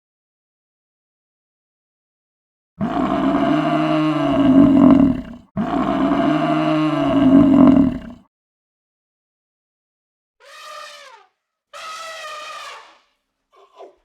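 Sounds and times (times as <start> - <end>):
animal low drawn-out call: 2.8 - 8.3.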